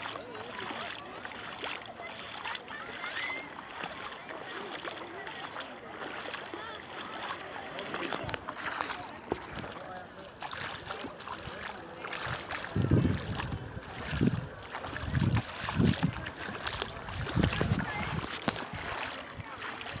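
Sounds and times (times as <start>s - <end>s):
wind gusting on microphone: 12.2s - 20.0s.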